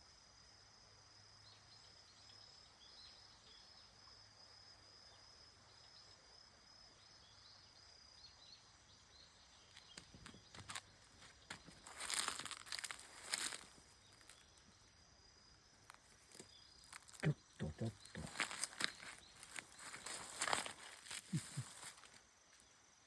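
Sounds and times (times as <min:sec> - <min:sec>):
high insect trill: 0:00.0 - 0:23.0
small chirps: 0:09.6 - 0:22.8.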